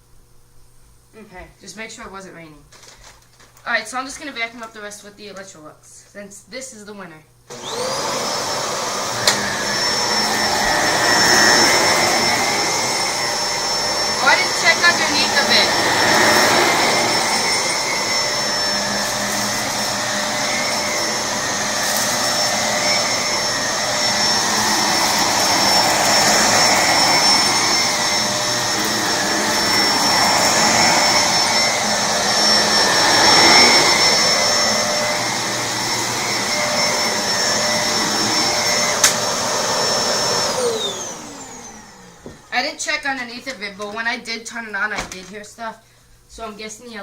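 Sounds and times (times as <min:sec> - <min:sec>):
vacuum cleaner motor whine: 0:07.5 - 0:43.9.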